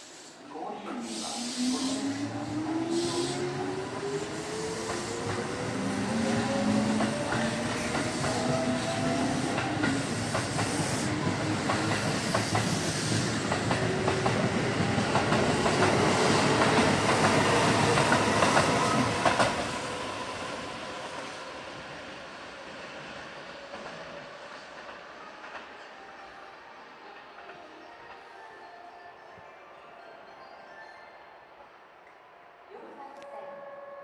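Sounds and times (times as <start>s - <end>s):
train running noise: 0.0s - 29.5s
train wheels clicking over rail joints: 2.7s - 19.9s.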